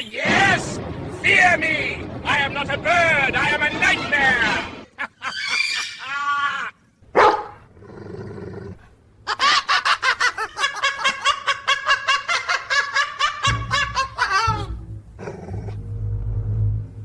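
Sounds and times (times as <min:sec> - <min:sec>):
loud hit: 0:00.2 - 0:04.9.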